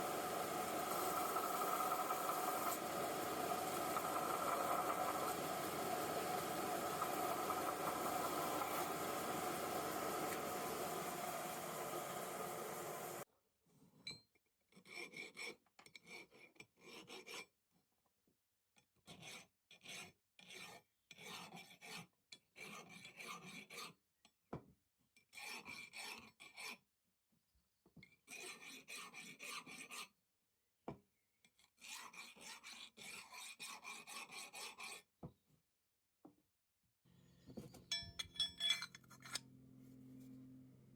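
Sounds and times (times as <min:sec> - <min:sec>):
hand file rasping: 0:00.0 - 0:10.9, 0:31.8 - 0:35.1.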